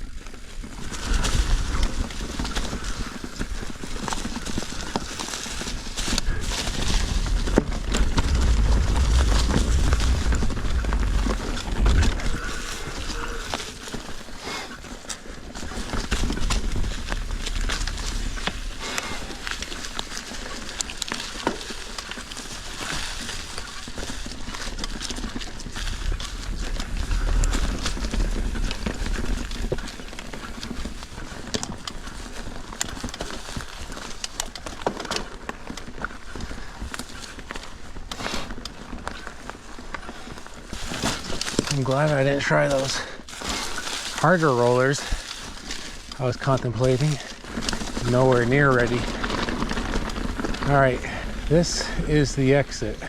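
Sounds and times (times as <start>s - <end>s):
wind rumble on microphone: 0.0s - 34.6s
bike rattling and clattering: 0.0s - 53.0s
bike tyres crunching over rock: 0.0s - 53.0s.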